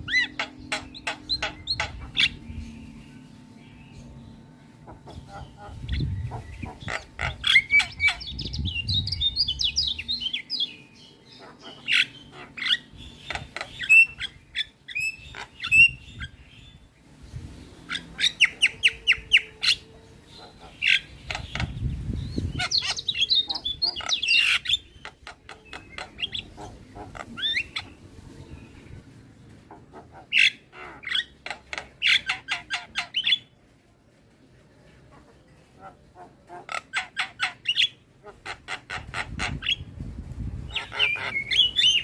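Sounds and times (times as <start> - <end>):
myna squawking and whistling: 22.4 - 27.9, 40.7 - 42.0.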